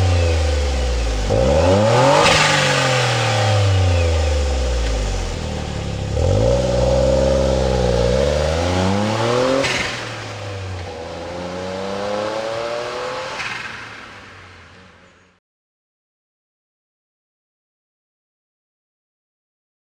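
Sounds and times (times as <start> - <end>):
car engine exhaust note rising and falling: 0.0 - 15.4.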